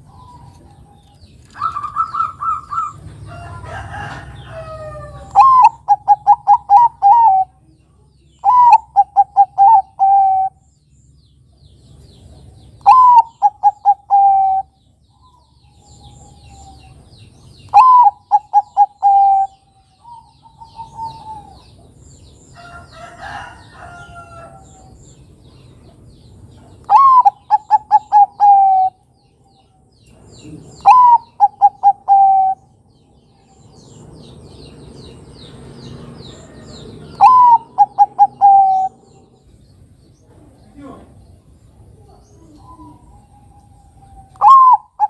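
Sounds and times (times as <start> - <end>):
dove cooing: 0.0 - 7.6, 8.4 - 10.6, 12.8 - 14.8, 17.7 - 21.8, 26.8 - 29.0, 30.4 - 32.8, 36.5 - 39.5, 41.9 - 45.0
faint bird calls: 0.0 - 10.7, 12.7 - 21.8, 26.5 - 34.0, 36.2 - 39.6, 40.2 - 45.0.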